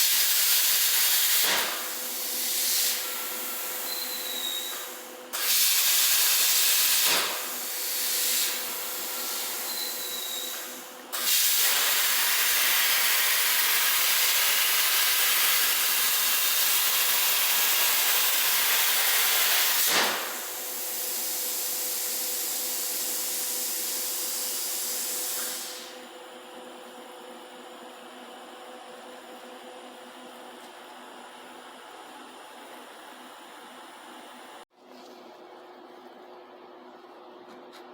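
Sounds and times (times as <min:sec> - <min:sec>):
plasma torch cutting hiss: 0:00.0 - 0:26.1.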